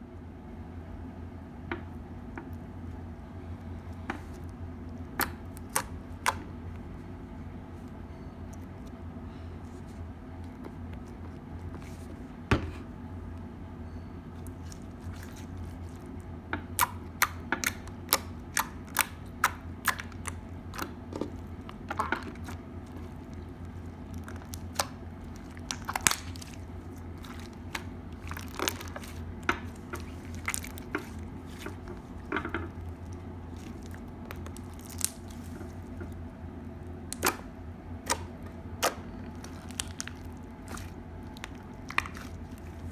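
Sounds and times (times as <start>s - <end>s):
low steady hum: 0.0s - 42.9s
crunchy slime squeezed by hand: 5.1s - 6.6s, 14.4s - 36.2s, 37.1s - 42.9s.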